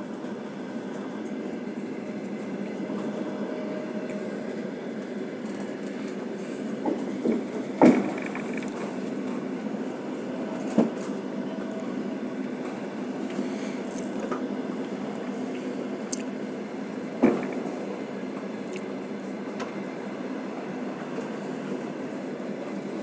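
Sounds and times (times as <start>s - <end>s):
train carriage rumble: 0.0s - 23.0s
wheels knocking on track: 6.9s - 8.9s.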